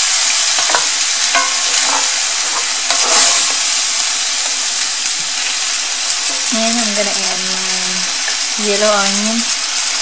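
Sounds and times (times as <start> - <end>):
chicken sizzling in oil: 0.0 - 10.0
wooden spoon scraping a pan: 0.4 - 4.6.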